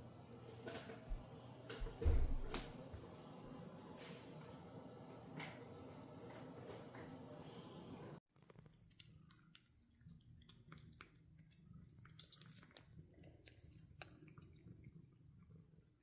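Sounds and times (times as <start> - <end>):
small clicks and crackles: 8.3 - 15.2.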